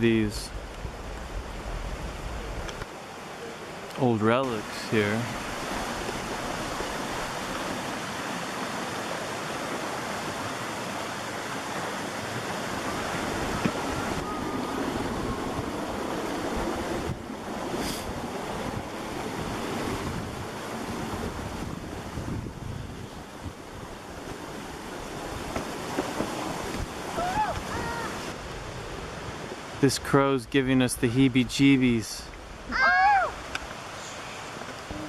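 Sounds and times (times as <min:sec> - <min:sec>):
wind buffeting microphone: 0:00.0 - 0:02.9, 0:05.0 - 0:29.8
flowing creek water: 0:00.0 - 0:35.0.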